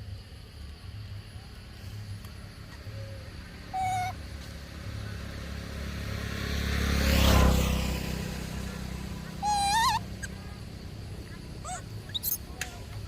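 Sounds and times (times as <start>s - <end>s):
motor vehicle passing: 2.0s - 13.0s
short high-pitched calls: 3.8s - 4.2s, 9.4s - 10.5s.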